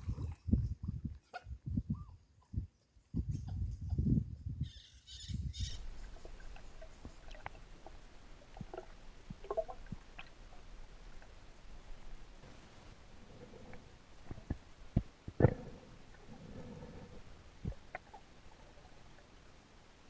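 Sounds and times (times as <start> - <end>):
faint underwater hiss: 5.6 - 20.0.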